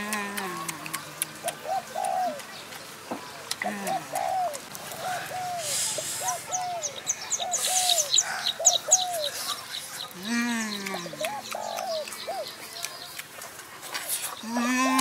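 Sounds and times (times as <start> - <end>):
high-pitched bird ticking: 0.0 - 2.9, 10.1 - 13.4.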